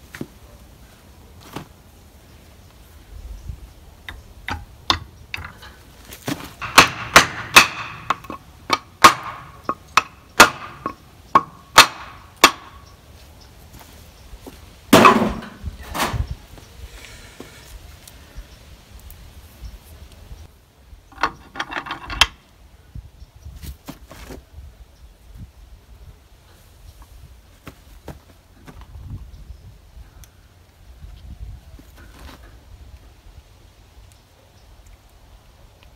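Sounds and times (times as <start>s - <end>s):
hand tools knocking on metal: 6.6s - 12.8s
loud metal clatter: 14.9s - 16.2s.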